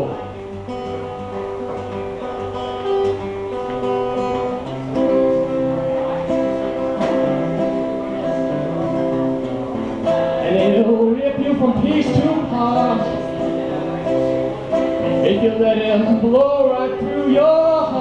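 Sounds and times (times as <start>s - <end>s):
acoustic guitar folk chords: 0.0s - 18.0s.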